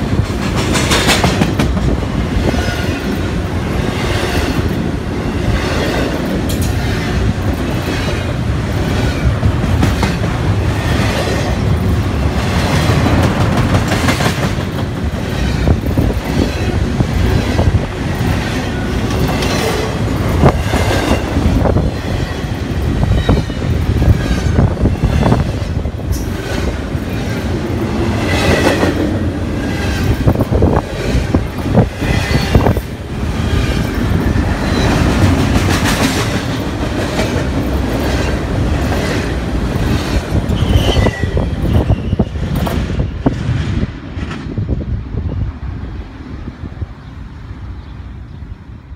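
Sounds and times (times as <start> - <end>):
freight train rumbling past: 0.0 - 48.9.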